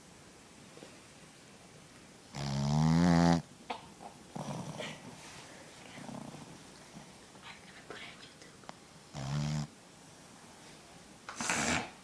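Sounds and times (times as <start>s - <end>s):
puppy snoring: 2.3s - 3.5s, 4.3s - 5.2s, 5.9s - 7.1s, 9.1s - 9.8s, 11.3s - 12.0s.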